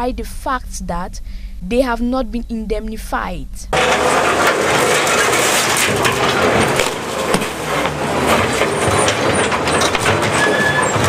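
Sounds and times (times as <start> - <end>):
debris clanking and clattering: 3.7 - 11.0
heavy machinery engine running: 3.7 - 11.0.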